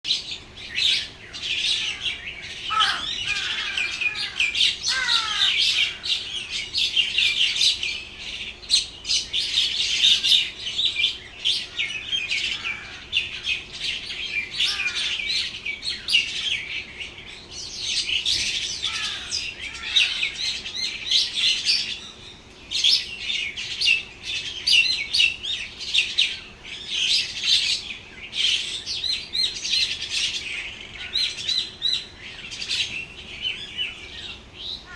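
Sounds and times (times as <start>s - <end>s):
many small birds chirping: 0.0s - 34.9s
downward-sliding bird calls: 1.0s - 7.4s.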